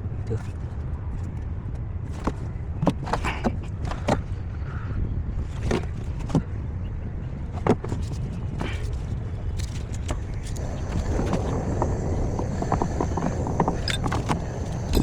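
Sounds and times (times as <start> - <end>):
steady low rumble: 10.2 - 15.0.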